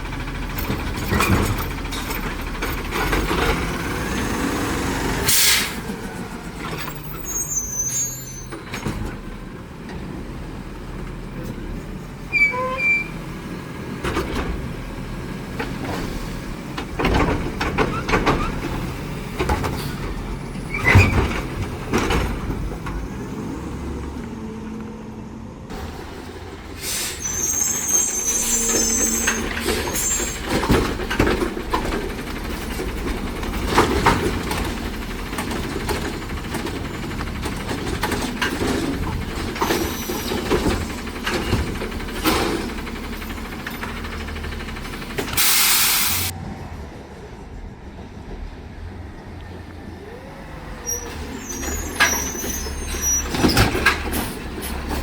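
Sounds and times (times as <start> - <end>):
garbage truck engine running: 0.0 - 55.0
air hiss: 45.4 - 46.3.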